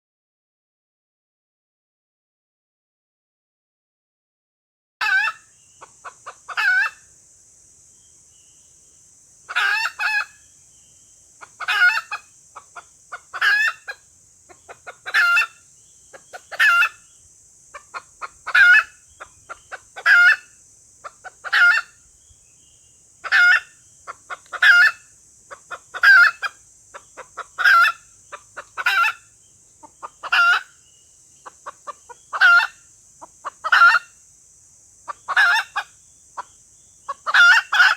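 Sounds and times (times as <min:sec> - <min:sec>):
junglefowl clucking: 0:05.0 - 0:07.1, 0:09.5 - 0:10.4, 0:11.4 - 0:17.1, 0:17.7 - 0:22.0, 0:23.2 - 0:30.8, 0:31.4 - 0:34.2, 0:35.1 - 0:37.9
steady high hiss: 0:05.4 - 0:37.9.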